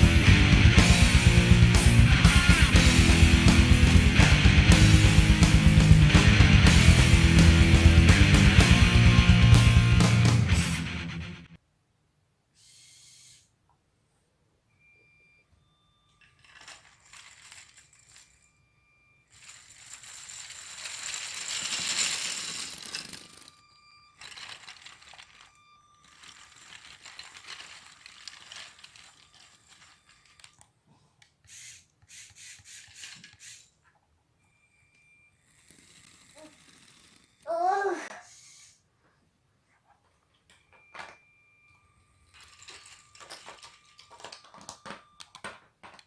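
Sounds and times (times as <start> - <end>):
small electric motors whirring: 12.6 - 13.5, 19.3 - 30.6, 31.5 - 33.7, 35.4 - 38.8
plastic gears and tracks clicking: 16.2 - 18.4, 19.3 - 23.6, 24.2 - 30.7, 31.4 - 33.7, 35.4 - 37.6, 42.3 - 46.0.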